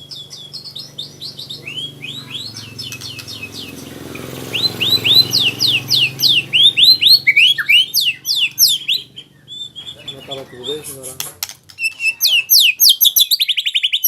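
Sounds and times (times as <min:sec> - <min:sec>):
bird chattering and whistling: 0:00.0 - 0:14.0.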